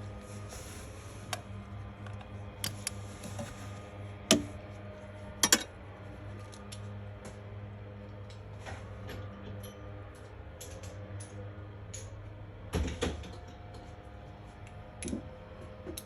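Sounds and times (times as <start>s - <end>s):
steady low hum: 0.0s - 12.8s
metal parts and tools clinking: 5.4s - 5.7s.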